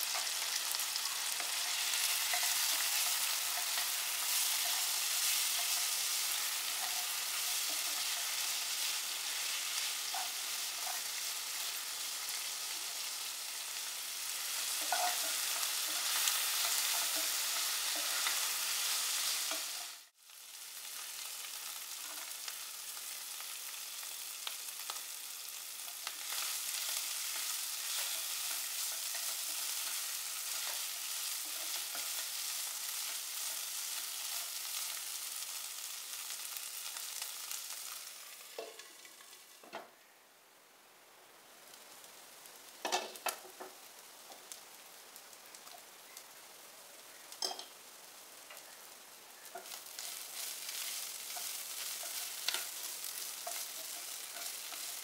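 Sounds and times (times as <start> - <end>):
food sizzling in oil: 0.0 - 40.2, 41.1 - 55.0
wooden spatula scraping and clicking: 49.5 - 55.0.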